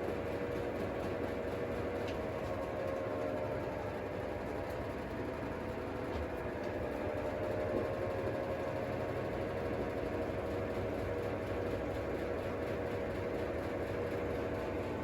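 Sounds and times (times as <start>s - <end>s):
washing machine motor humming: 0.1s - 15.0s.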